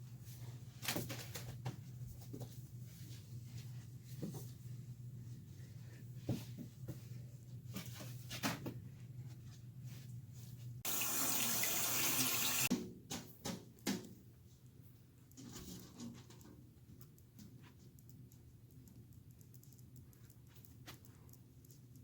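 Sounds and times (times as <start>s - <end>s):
water running from a tap: 10.9s - 12.7s.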